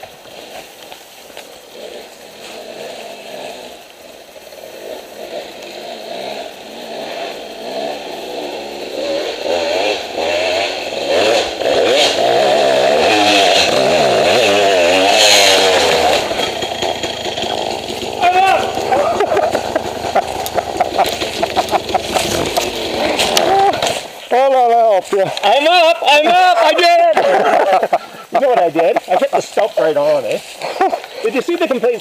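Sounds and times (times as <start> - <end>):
dirt bike engine revving: 0.0 - 24.8.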